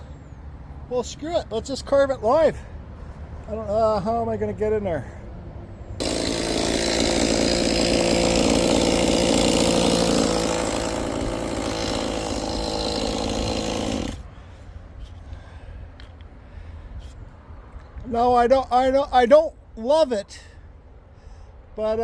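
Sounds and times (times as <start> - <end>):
chainsaw carving into log: 6.0 - 14.3.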